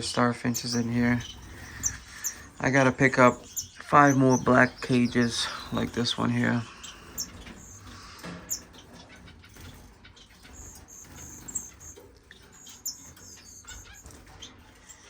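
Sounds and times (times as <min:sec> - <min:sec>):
finches chirping: 0:00.0 - 0:15.0
soft clicks from cages: 0:04.6 - 0:15.0.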